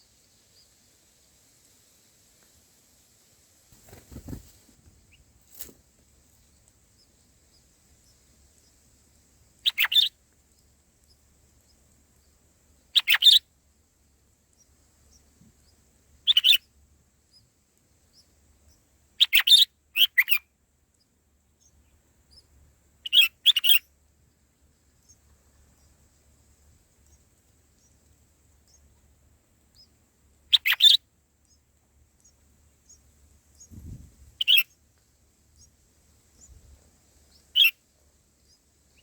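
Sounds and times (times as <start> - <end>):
bulbul calling: 9.6 - 10.2, 12.9 - 13.4, 15.1 - 16.7, 19.2 - 20.4, 21.6 - 23.9, 30.5 - 31.6, 34.4 - 34.8, 37.3 - 37.8.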